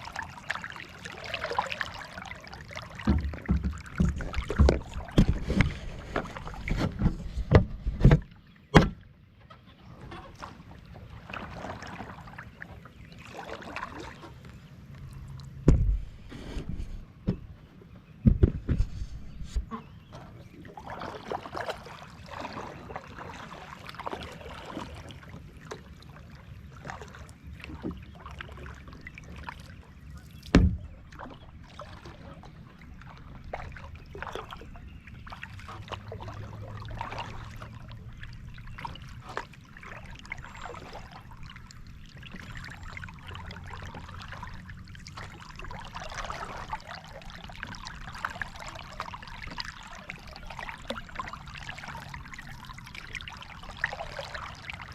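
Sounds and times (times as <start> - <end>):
water splashing and dripping: 0.0 - 9.0, 10.1 - 16.1, 20.2 - 26.1, 26.7 - 54.9.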